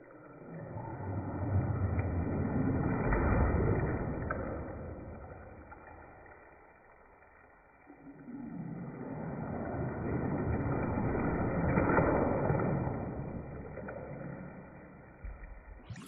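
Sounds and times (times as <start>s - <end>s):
bathwater sloshing: 8.6s - 14.8s.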